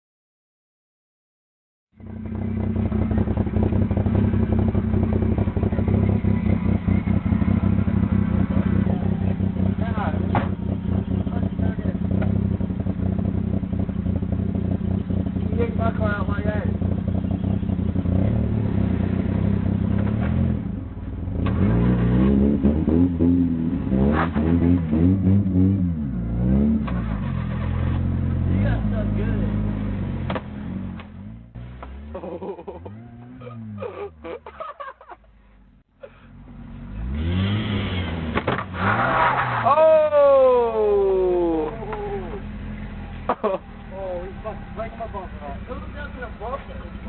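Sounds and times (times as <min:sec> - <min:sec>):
vehicle engine running with pulsing: 0:01.9 - 0:38.8, 0:40.0 - 0:47.0.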